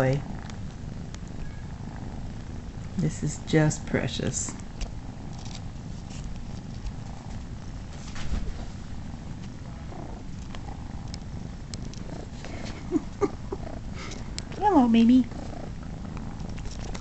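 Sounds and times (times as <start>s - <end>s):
cats purring: 0.0s - 17.0s
brief rustle: 7.9s - 8.8s.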